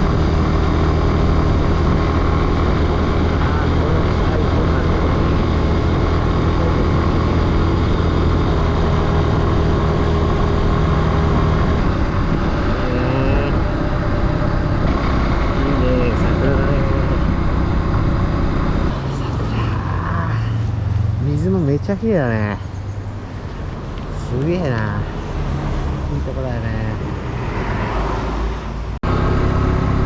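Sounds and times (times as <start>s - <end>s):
wind noise on microphone: 0.0s - 19.0s
motorcycle engine running: 0.0s - 26.5s.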